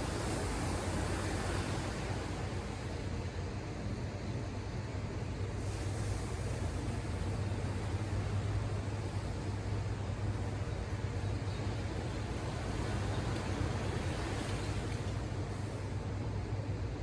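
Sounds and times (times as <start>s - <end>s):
ocean surf washing ashore: 11.7s - 15.8s.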